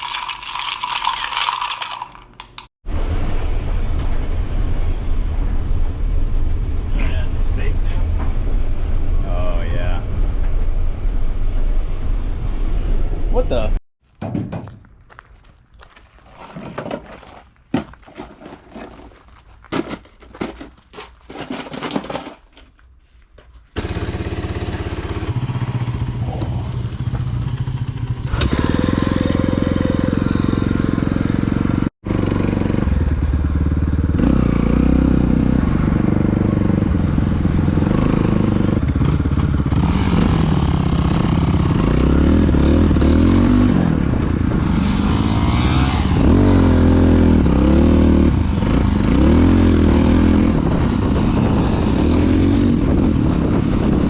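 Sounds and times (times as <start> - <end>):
dirt bike engine running: 23.8 - 43.7.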